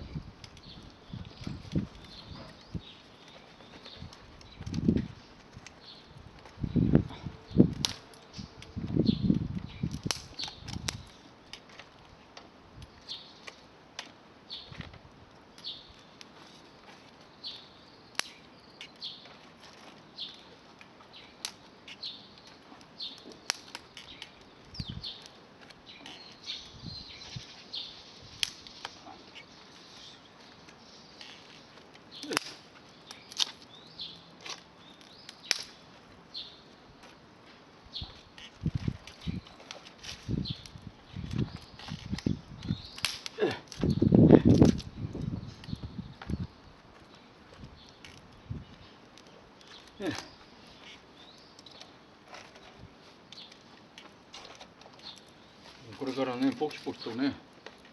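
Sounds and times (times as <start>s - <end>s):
birds chirping: 0.0s - 11.6s, 12.8s - 13.7s, 15.5s - 57.8s
campfire crackling and popping: 0.0s - 57.9s
rustling of handling: 0.4s - 6.7s, 15.9s - 17.7s, 18.3s - 44.9s, 45.5s - 57.9s
bird chirping: 21.1s - 37.2s.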